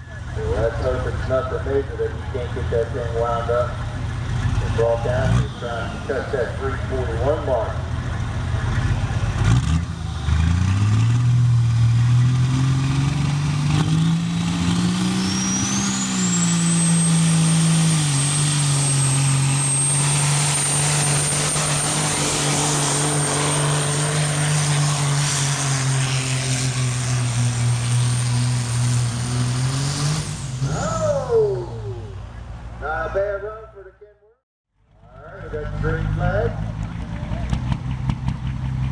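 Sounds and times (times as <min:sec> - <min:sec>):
diesel truck engine revving: 0:00.0 - 0:33.3, 0:34.8 - 0:38.9.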